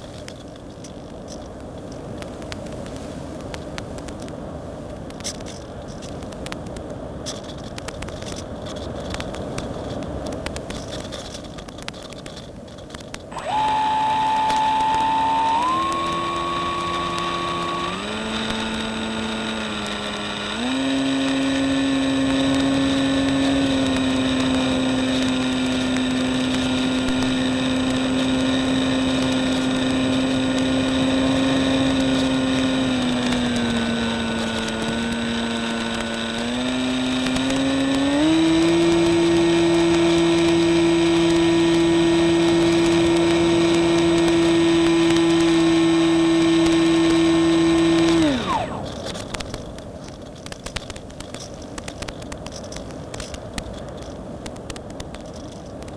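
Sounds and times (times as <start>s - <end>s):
crackly noise: 0.0s - 55.9s
model plane motor whine: 11.7s - 53.4s.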